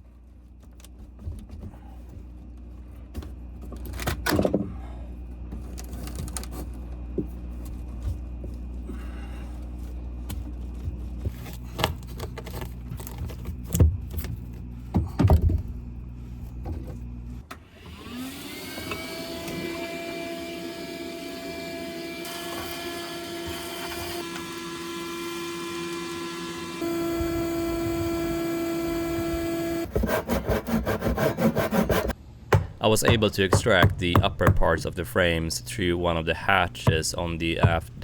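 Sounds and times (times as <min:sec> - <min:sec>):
electric power tool whirring: 0:17.6 - 0:30.0.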